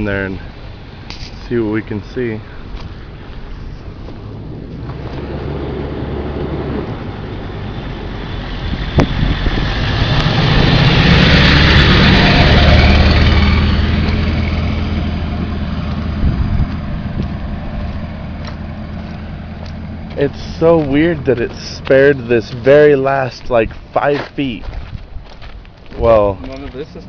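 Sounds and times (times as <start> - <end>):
vehicle driving past: 2.7 - 23.5.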